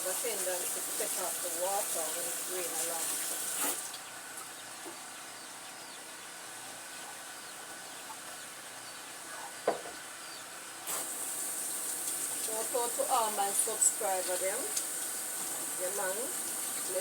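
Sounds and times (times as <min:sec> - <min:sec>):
water running from tap: 0:00.0 - 0:04.0, 0:10.9 - 0:17.0.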